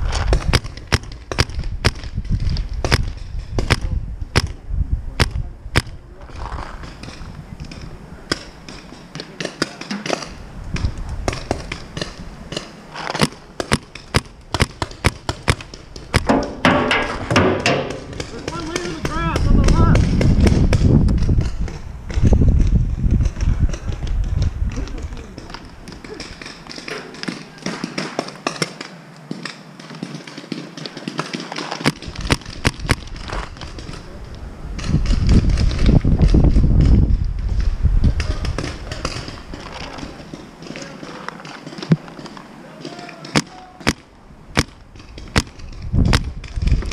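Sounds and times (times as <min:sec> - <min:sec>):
sharp cracks: 0:00.0 - 0:04.6, 0:05.2 - 0:46.9
paintball markers firing: 0:00.2 - 0:04.6, 0:05.2 - 0:06.0, 0:06.7 - 0:34.1, 0:38.1 - 0:46.9.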